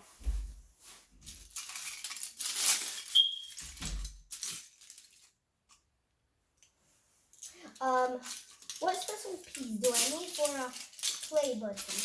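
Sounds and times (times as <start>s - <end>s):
plastic bricks clattering: 8.2s - 12.0s.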